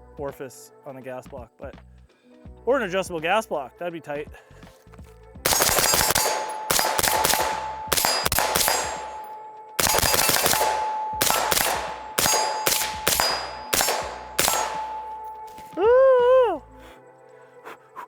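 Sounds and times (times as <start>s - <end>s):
suppressed rifle shots: 5.5s - 15.8s
steady metallic ring: 5.5s - 15.9s.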